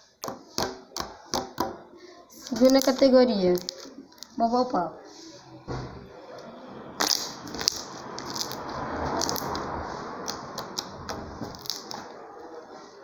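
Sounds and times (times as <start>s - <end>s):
slime squishing: 7.0s - 12.2s.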